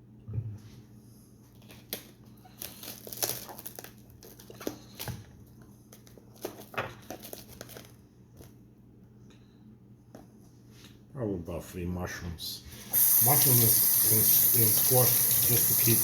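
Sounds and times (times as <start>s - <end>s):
plastic packaging crinkling: 1.5s - 8.5s.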